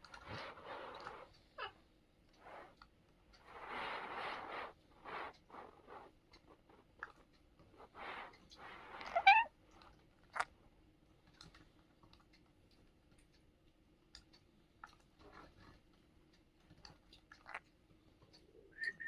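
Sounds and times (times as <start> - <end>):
parrot squawk: 9.0 - 9.5
small clicks and taps: 11.2 - 18.5.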